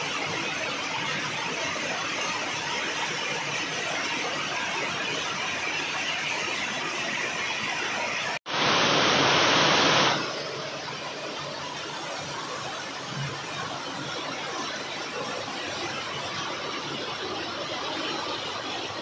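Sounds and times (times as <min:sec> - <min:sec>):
rain hissing: 0:08.5 - 0:10.5.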